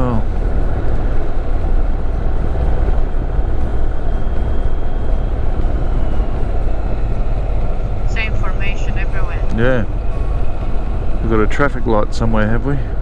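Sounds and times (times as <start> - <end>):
motorcycle engine: 0.0 - 13.0
road noise: 0.0 - 13.0
wind rushing over microphone: 0.0 - 13.0.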